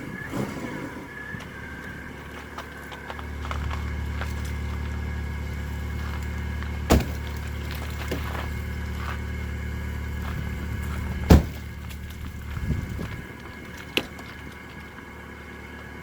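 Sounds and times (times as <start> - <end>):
car engine humming: 0.0 - 16.0
loud thump: 6.8 - 7.4, 11.2 - 11.8.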